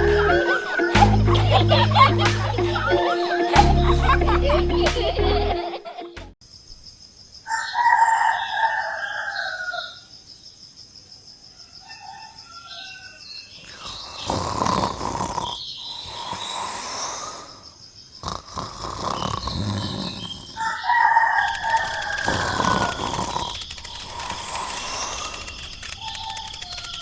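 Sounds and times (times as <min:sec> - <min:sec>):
rooster crowing: 0:00.0 - 0:02.1, 0:07.5 - 0:10.0, 0:11.6 - 0:13.3, 0:20.6 - 0:23.4.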